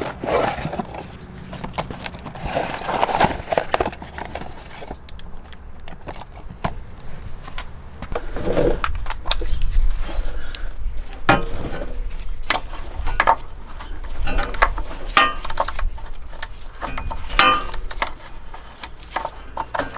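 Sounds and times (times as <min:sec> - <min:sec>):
rustling: 0:00.0 - 0:19.9
tools clicking and clinking: 0:12.4 - 0:19.9.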